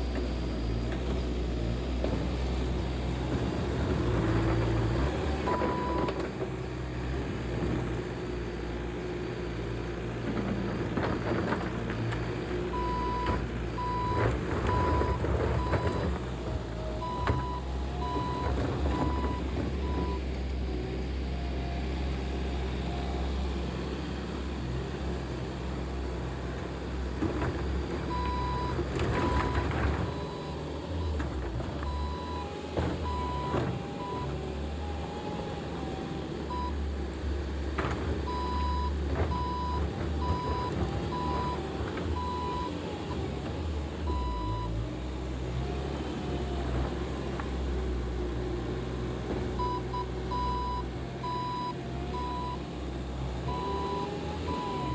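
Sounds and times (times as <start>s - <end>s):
loader engine running: 0.0s - 54.9s
backup alarm beeping: 17.0s - 20.2s.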